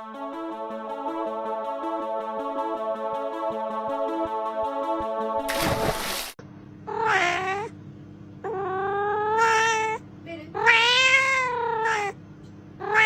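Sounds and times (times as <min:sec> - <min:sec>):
cat meowing: 0:06.9 - 0:07.7, 0:08.5 - 0:10.0, 0:10.6 - 0:12.2, 0:12.8 - 0:13.0.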